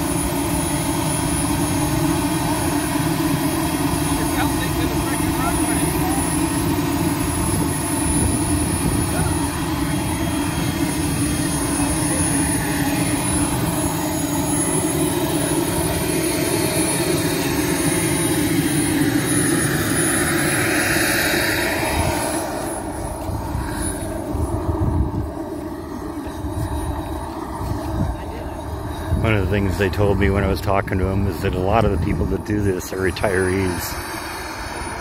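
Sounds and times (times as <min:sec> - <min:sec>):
model jet turbine engine hissing: 0:00.0 - 0:35.0.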